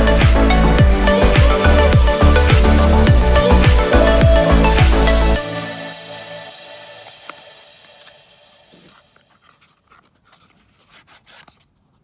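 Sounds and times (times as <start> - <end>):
electronic dance music: 0.0 - 8.7.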